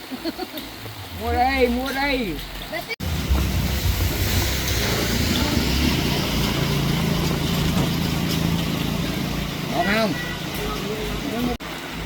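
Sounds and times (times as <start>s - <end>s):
vehicle engine running: 3.0s - 11.6s.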